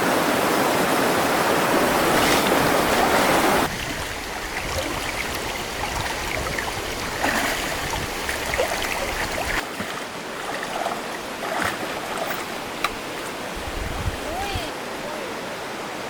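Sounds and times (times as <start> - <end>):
stream water running: 0.0 - 16.0
small water splashes: 1.8 - 13.6.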